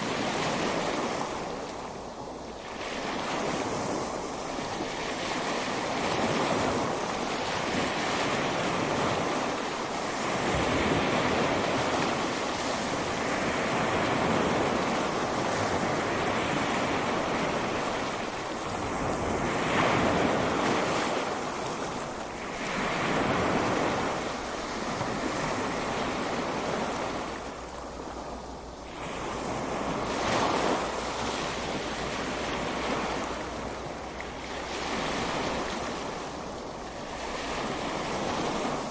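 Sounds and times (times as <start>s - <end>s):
ocean waves breaking on beach: 0.0s - 38.9s
wind: 0.0s - 38.9s.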